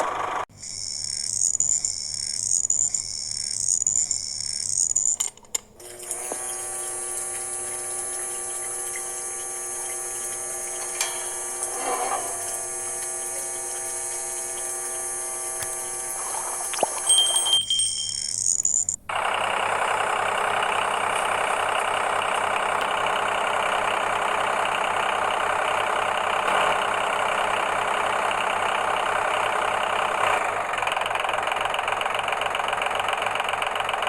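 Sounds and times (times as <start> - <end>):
small electric motor whining: 5.8 - 30.8.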